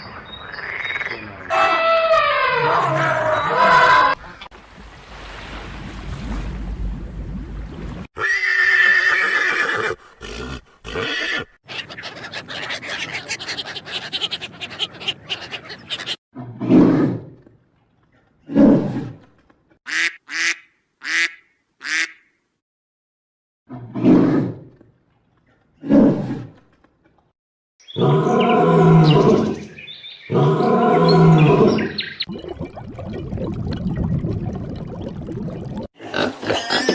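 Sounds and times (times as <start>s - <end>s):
animal calls: 8.2s - 16.2s.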